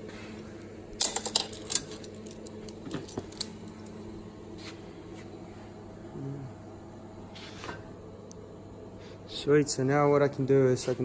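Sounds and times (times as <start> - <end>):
metal tools clinking: 1.0 - 3.6.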